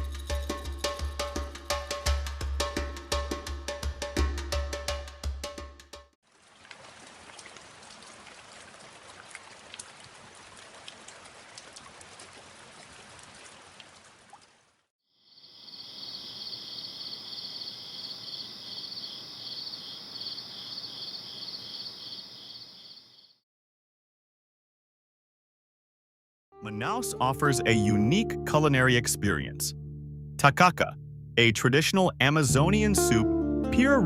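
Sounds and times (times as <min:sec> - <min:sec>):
water dripping: 0:06.3 - 0:14.6
insect chorus buzzing: 0:15.1 - 0:23.4.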